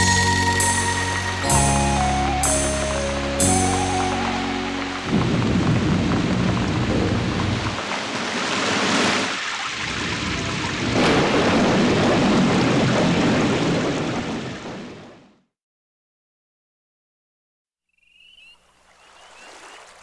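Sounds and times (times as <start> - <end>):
song ending: 0.0 - 5.5
heavy rain: 0.0 - 15.0
rolling thunder: 5.0 - 7.8.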